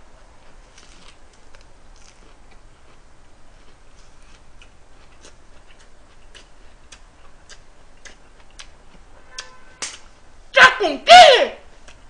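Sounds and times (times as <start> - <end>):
person chewing crisp food: 0.1 - 9.5.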